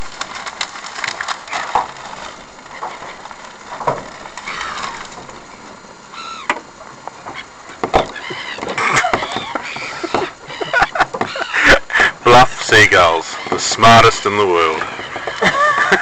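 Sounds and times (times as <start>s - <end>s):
seagulls squawking: 4.2s - 5.2s, 6.1s - 6.6s, 7.2s - 16.0s.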